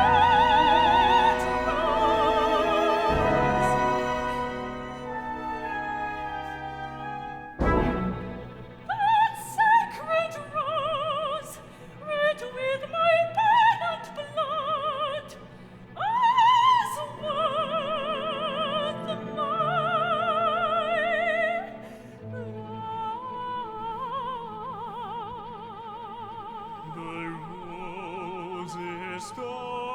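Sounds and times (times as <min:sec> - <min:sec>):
small orchestra playing: 0:00.0 - 0:10.2
operatic singing in a high voice: 0:00.0 - 0:15.4, 0:16.0 - 0:29.9.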